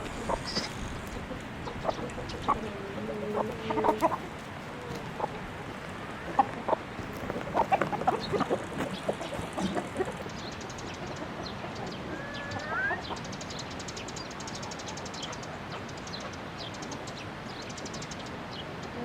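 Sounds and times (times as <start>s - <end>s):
steady hiss: 0.0s - 10.8s
chickens clucking: 0.0s - 19.0s
chicken rising call: 11.9s - 13.2s.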